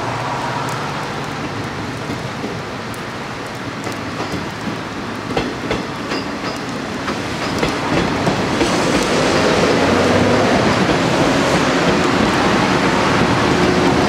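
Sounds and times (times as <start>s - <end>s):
train wheels clacking over joints: 3.8s - 14.0s.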